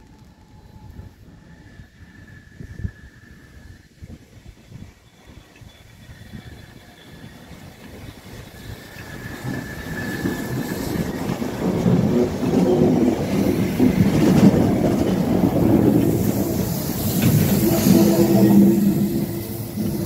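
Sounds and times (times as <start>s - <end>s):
steam train rumble: 0.0s - 20.0s
train wheel clatter: 5.1s - 20.0s.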